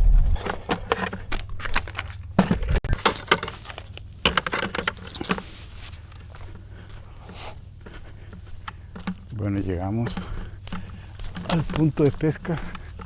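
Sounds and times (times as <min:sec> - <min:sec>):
hard objects clinking: 0:02.9 - 0:06.4.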